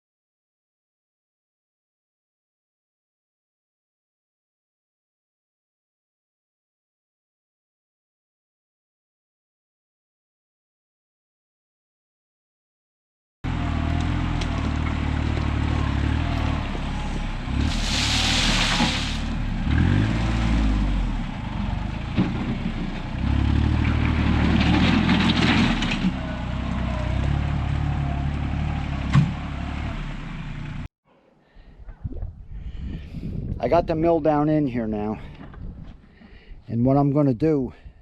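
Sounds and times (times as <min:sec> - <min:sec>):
vehicle engine running: 0:13.5 - 0:30.9
hissing burst: 0:17.7 - 0:19.3.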